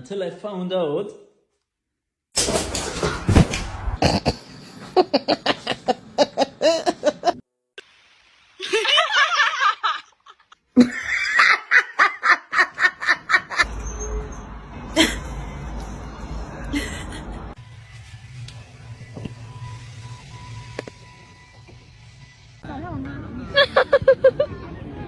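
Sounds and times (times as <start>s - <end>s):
person laughing hard: 4.0s - 7.4s, 8.6s - 13.7s, 15.0s - 17.6s, 23.6s - 24.5s.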